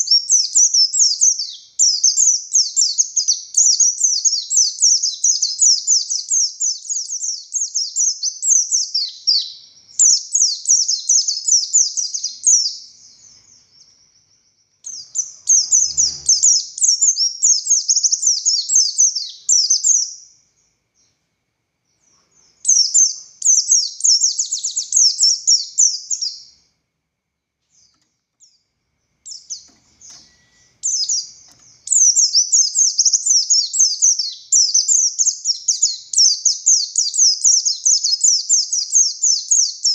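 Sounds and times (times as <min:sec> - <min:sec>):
white-eye bird chattering song: 0:00.0 - 0:21.1, 0:21.9 - 0:26.6, 0:29.2 - 0:39.9.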